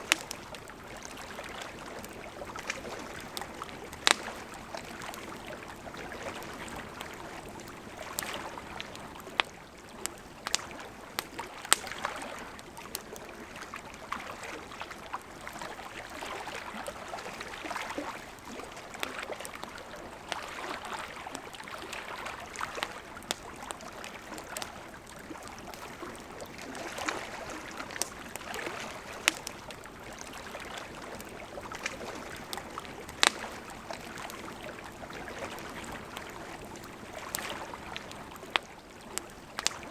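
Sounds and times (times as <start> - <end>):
campfire crackling and popping: 0.0 - 39.9
river flowing: 0.0 - 39.9.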